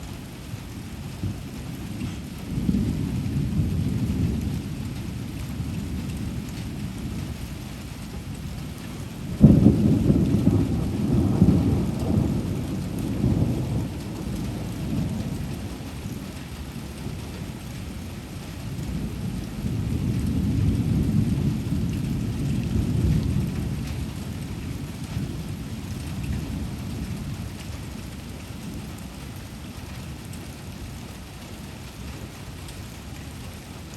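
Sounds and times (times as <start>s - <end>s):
steady rain falling: 0.0s - 33.9s
thunder rumbling: 9.1s - 16.2s, 18.8s - 27.3s.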